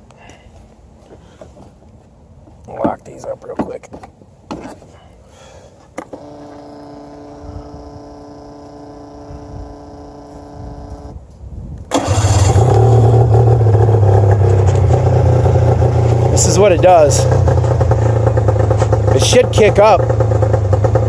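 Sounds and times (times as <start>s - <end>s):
steady electric whine: 6.0s - 11.2s
snowmobile engine running: 6.2s - 11.1s, 12.0s - 21.0s.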